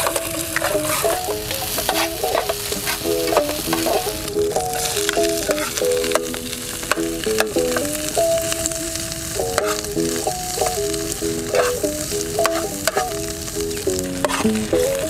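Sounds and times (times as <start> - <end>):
metal spatula scraping a pan: 0.0 - 6.4, 9.6 - 10.8, 11.5 - 13.3, 14.1 - 15.0
background music: 0.0 - 15.0
food sizzling in a frying pan: 0.0 - 15.0.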